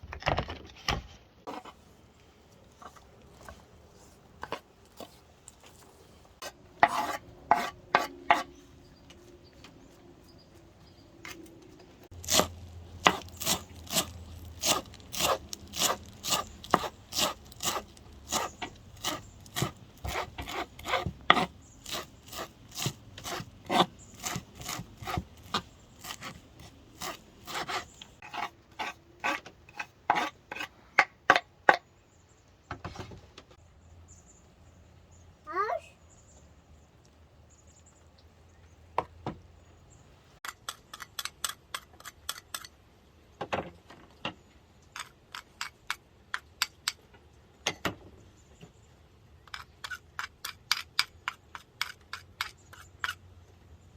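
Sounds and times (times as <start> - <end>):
knife chopping on cutting board: 12.3 - 30.7.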